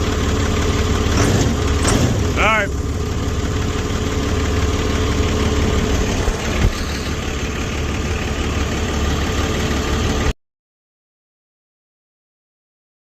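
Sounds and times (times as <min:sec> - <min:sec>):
diesel engine idling: 0:00.0 - 0:10.4.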